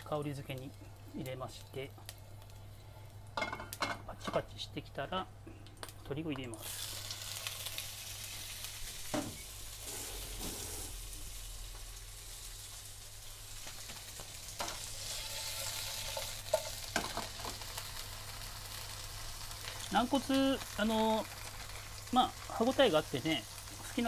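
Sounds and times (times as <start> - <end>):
meat sizzling in oil: 6.6 - 24.0
knocks in a frying pan: 9.1 - 9.4, 16.5 - 17.6.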